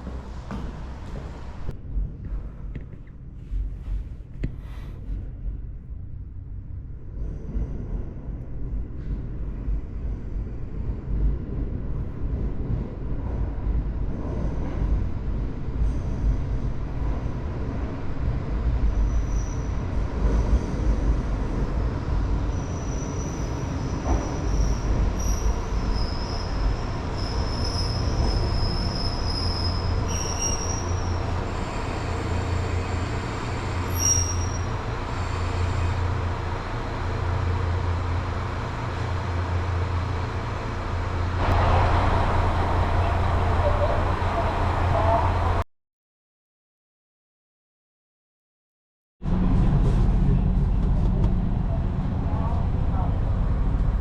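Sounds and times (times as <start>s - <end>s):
train rumbling on rails: 0.0s - 45.6s, 49.2s - 54.0s
wheel squeal: 19.0s - 20.8s, 22.5s - 36.0s.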